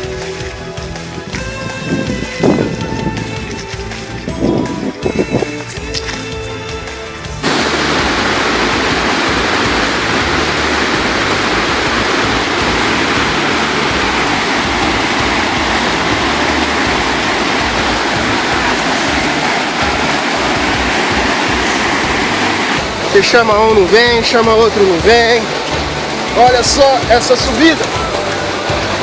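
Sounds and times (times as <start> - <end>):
waterfall roaring: 7.4 - 29.0.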